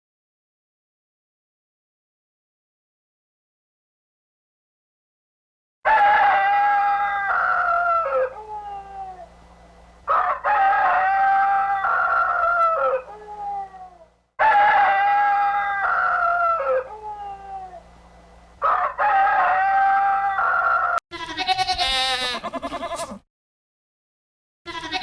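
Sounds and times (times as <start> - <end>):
rooster crowing: 5.8 - 9.4, 10.1 - 17.9, 18.6 - 21.0
quavering bleat: 19.5 - 23.2, 24.7 - 25.0.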